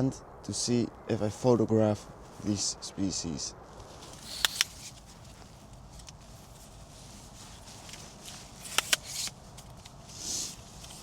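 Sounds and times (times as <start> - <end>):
short rustle: 3.6 - 11.0
sharp clicks: 4.2 - 5.0, 8.6 - 9.4.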